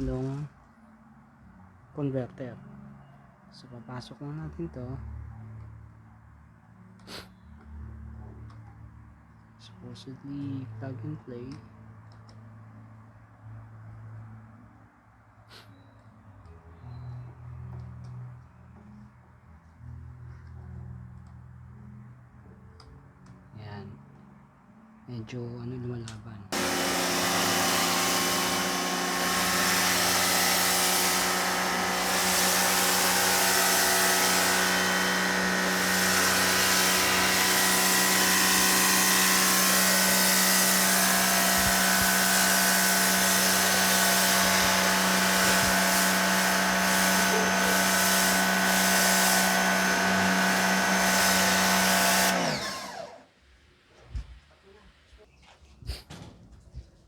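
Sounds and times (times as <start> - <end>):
pressure washer motor humming: 26.5 - 53.2.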